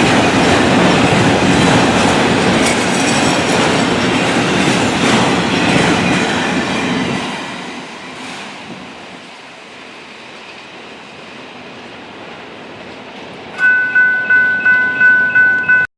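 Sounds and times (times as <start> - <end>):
train wheels clattering on rails: 0.0 - 9.5.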